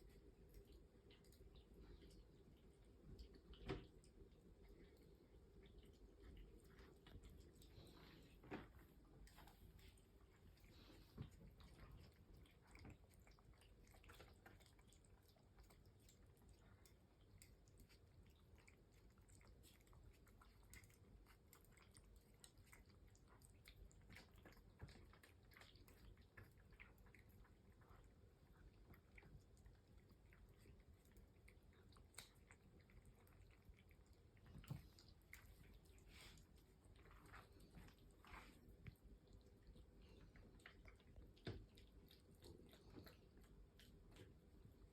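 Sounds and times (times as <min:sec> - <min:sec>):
cats chewing: 0:00.0 - 0:44.9.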